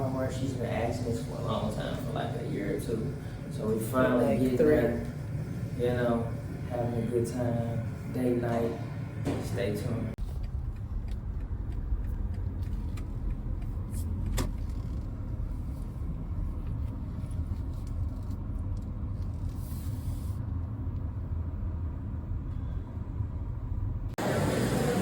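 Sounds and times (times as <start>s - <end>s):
engine and tyres rumbling: 10.2s - 25.0s.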